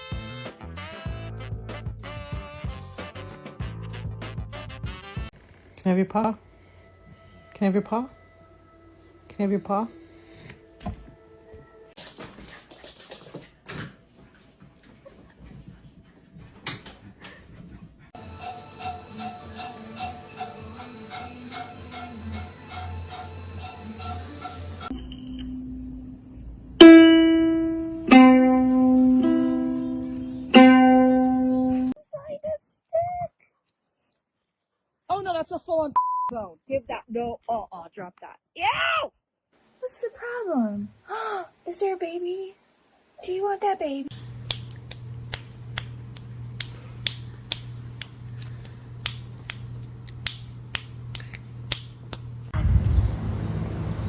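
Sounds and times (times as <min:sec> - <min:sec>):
steady low hum: 0:24.9 - 0:32.0
plucked string notes: 0:25.4 - 0:32.0.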